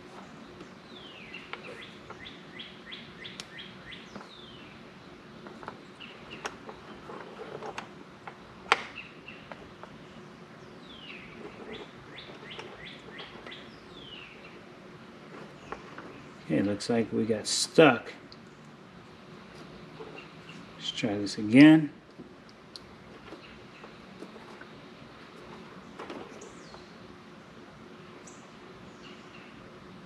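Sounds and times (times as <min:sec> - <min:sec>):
songbird downward-sliding chirps: 0:08.9 - 0:14.6.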